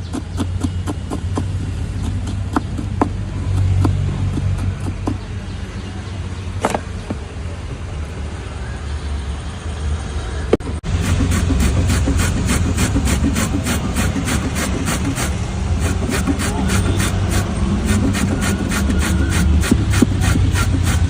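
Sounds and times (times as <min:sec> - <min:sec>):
utensil striking rapidly: 0:00.0 - 0:05.3, 0:10.6 - 0:21.0
low traffic rumble: 0:00.0 - 0:21.0.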